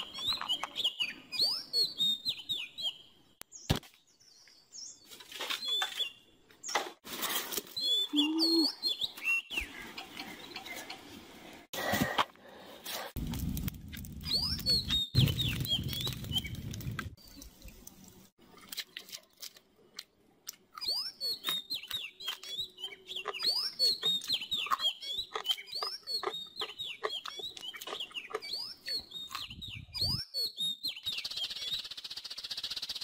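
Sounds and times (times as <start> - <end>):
small birds chirping: 0.0 - 6.8, 7.7 - 11.7, 14.2 - 18.2, 19.9 - 33.0.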